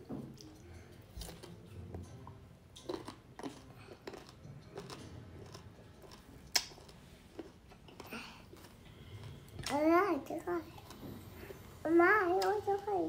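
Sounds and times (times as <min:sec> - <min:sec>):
chewing crunchy fruit: 0:00.3 - 0:09.8, 0:10.4 - 0:11.8.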